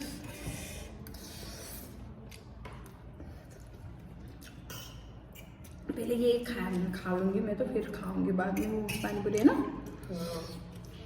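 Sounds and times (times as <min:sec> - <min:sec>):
person chewing: 0:00.0 - 0:05.9.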